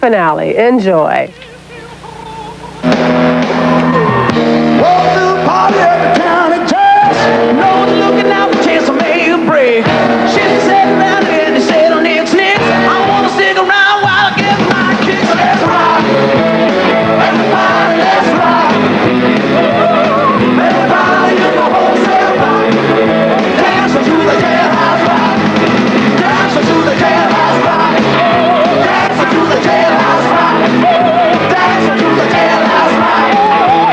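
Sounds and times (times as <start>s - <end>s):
live rock band playing: 2.6s - 33.9s
people shouting vocals: 17.0s - 25.5s, 26.2s - 33.9s.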